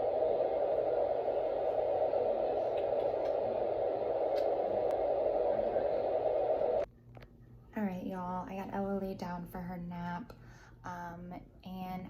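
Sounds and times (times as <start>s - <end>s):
steady rushing noise: 0.0s - 6.9s
faint clicks: 4.3s - 5.0s.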